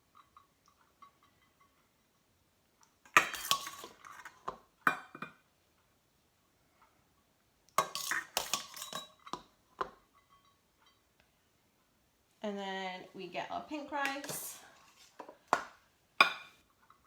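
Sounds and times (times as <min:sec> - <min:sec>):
spoon clinking against cookware: 0:03.1 - 0:04.3, 0:07.8 - 0:11.0.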